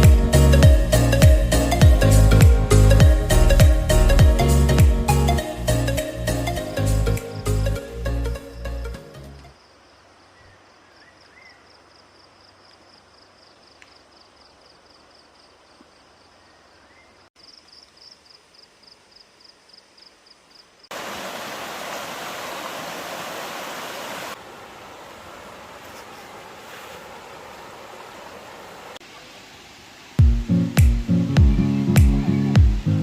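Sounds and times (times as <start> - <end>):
rushing water: 0.0 - 7.6, 20.9 - 33.0.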